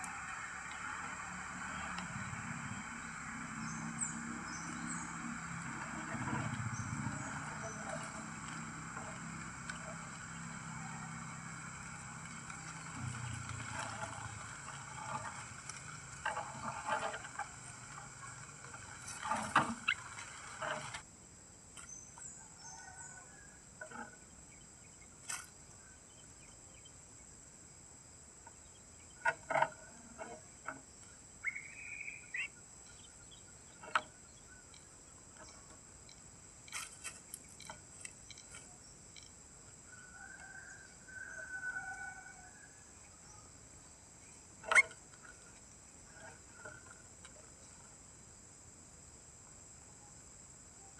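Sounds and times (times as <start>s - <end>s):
short bird calls: 31.4s - 33.1s.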